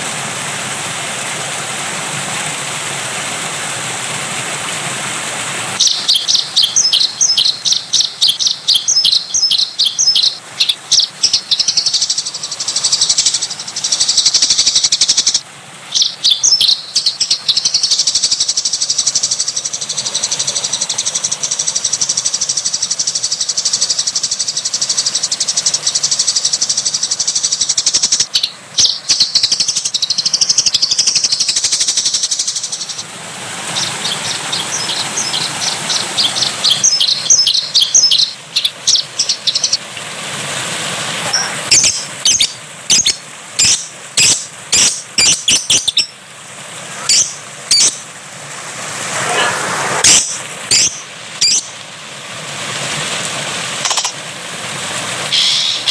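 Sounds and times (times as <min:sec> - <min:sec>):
running water: 0:00.0 - 0:55.9
songbird trilling: 0:05.8 - 0:33.0, 0:33.8 - 0:39.8, 0:41.3 - 0:46.2, 0:47.0 - 0:48.0, 0:49.1 - 0:51.8, 0:53.8 - 0:54.2, 0:55.3 - 0:55.9.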